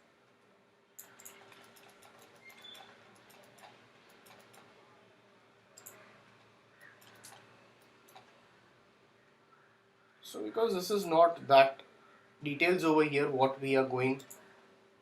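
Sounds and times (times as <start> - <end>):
low room hum: 0.0 - 15.0
computer mouse clicks: 1.0 - 4.7, 5.8 - 6.0, 6.8 - 8.4, 14.2 - 14.5.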